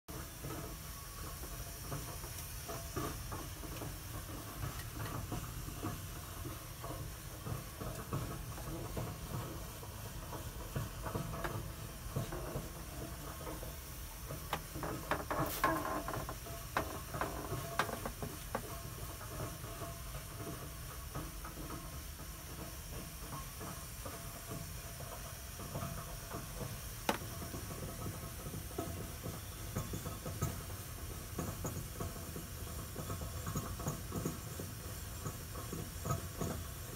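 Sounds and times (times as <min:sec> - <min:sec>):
boiler clicks: 0:00.1 - 0:36.9
boiler hiss and rumble: 0:00.1 - 0:36.9
crackling: 0:02.0 - 0:19.3.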